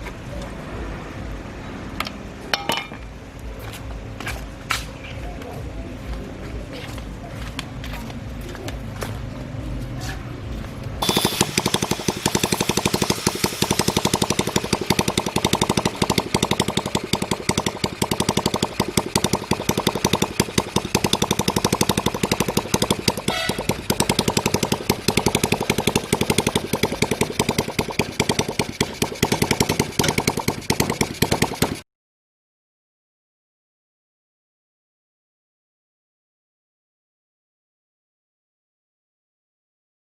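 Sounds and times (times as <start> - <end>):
motorcycle engine starting and running: 0.0 - 31.9.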